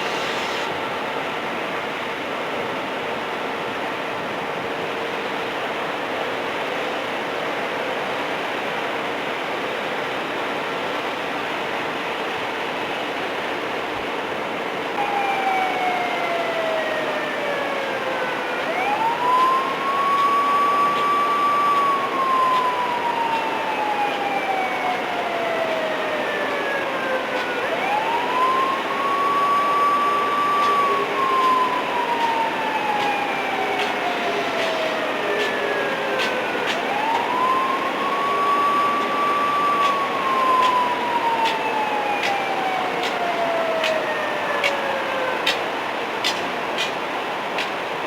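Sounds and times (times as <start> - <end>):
steady background noise: 0.0 - 48.0
siren wailing: 15.0 - 46.0.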